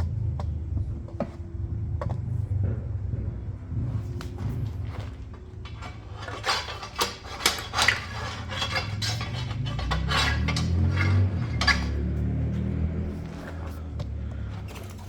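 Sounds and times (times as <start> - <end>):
steel parts clinking and clanking: 4.1 - 15.0.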